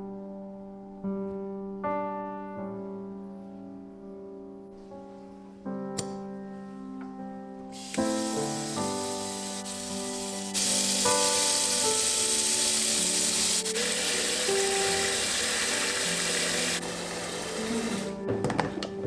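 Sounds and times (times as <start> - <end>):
soft background music: 0.0 - 19.0
loud steady hiss: 7.7 - 18.2.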